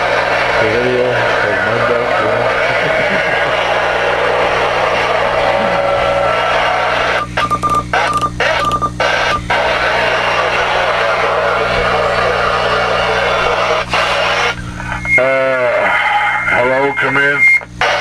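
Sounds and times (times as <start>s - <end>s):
radio static: 0.6s - 18.0s
garbled distant voices: 9.0s - 17.3s.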